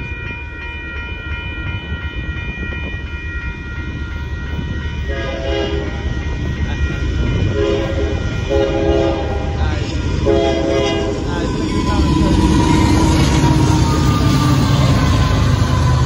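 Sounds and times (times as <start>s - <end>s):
freight train rumble: 0.0s - 16.0s
locomotive air horn blasts: 5.1s - 6.0s, 7.6s - 9.6s, 10.2s - 11.2s.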